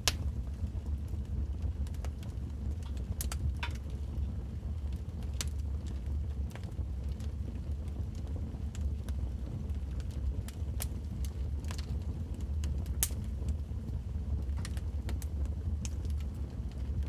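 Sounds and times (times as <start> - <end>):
fire crackling and popping: 0.0 - 17.0
fire low rumble: 0.0 - 17.0.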